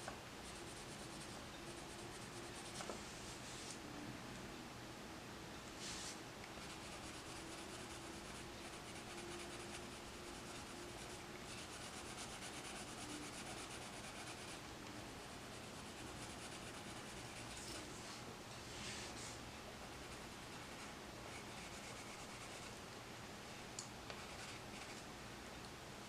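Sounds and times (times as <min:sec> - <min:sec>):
coloured pencil shading on paper: 0:00.4 - 0:02.8, 0:06.5 - 0:14.7, 0:15.3 - 0:17.8, 0:19.9 - 0:22.7.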